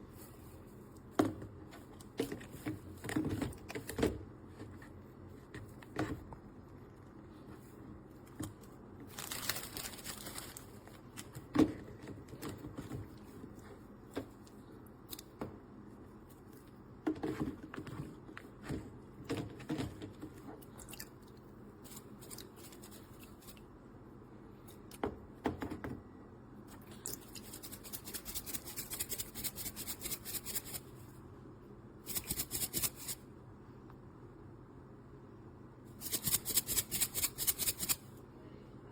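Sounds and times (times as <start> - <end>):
packaging crinkling: 9.0 - 11.4.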